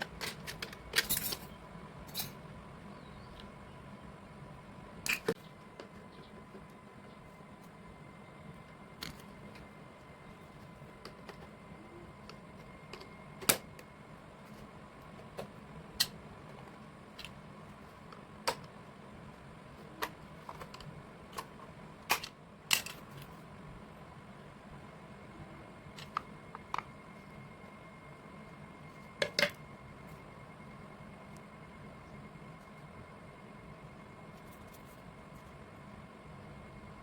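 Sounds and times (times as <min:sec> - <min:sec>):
faint steady hum: 0:00.0 - 0:37.0
small parts clicking and tapping: 0:20.0 - 0:23.3.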